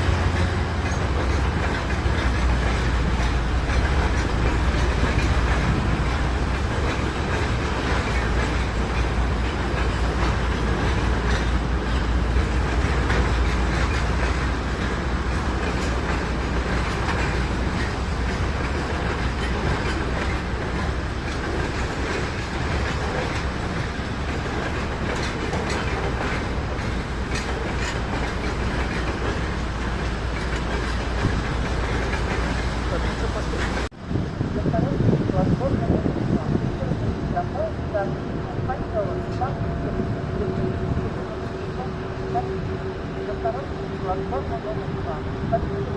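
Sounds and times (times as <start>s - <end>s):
wheels clicking over rail joints: 0.0s - 33.9s
train rumbling on rails: 0.0s - 45.9s.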